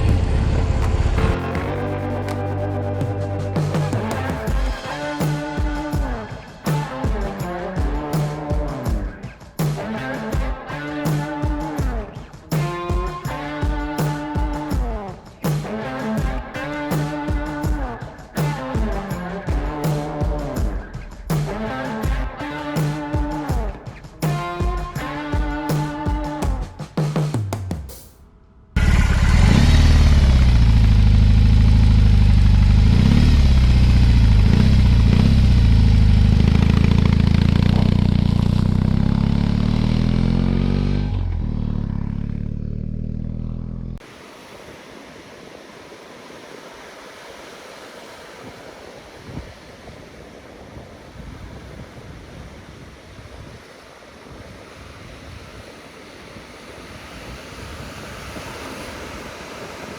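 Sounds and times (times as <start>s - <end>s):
motorcycle engine running: 0.0s - 4.9s, 28.8s - 44.0s
wind and surf: 0.0s - 27.6s, 44.0s - 59.9s.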